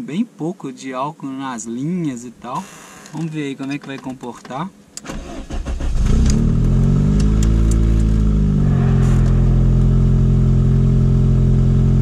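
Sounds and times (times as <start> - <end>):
car engine idling: 5.2 - 12.0.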